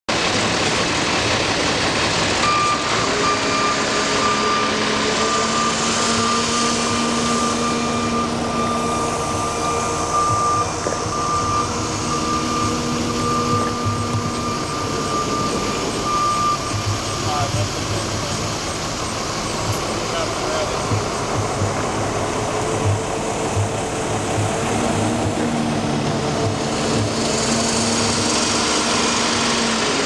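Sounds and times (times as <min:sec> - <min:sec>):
heavy engine running: 0:00.1 - 0:30.0
reversing alarm beeping: 0:02.4 - 0:30.0.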